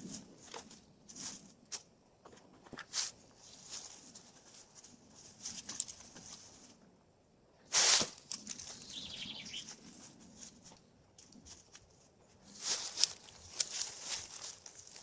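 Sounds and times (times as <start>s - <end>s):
dry leaves rustling: 2.9s - 6.8s, 7.7s - 15.0s.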